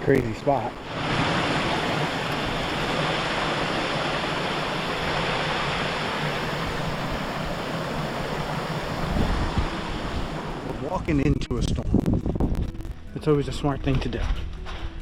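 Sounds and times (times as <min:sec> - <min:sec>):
waterfall rushing: 0:00.6 - 0:11.0.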